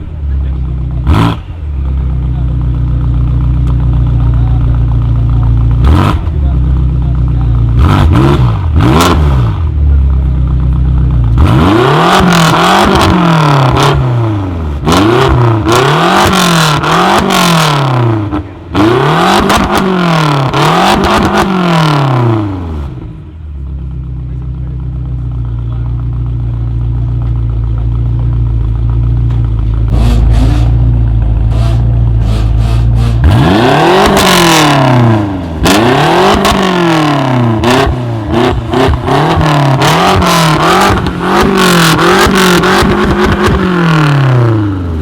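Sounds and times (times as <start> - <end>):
car engine revving and idling: 0.0 - 45.0
exhaust cracks: 24.3 - 45.0.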